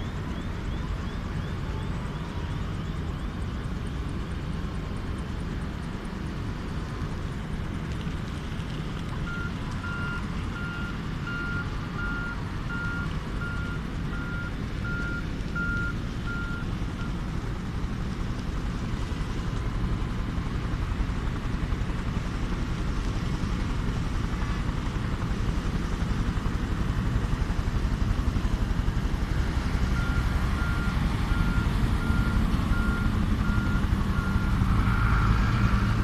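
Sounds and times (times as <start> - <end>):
vehicle reversing alarm beeps: 0.0 - 4.0, 9.2 - 17.4, 29.9 - 35.6.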